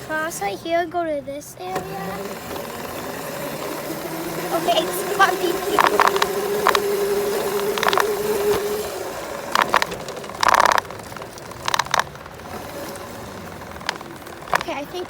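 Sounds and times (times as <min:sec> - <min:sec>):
dirt bike engine running: 0:01.6 - 0:15.0
clattering knocks and rattles: 0:04.5 - 0:15.0.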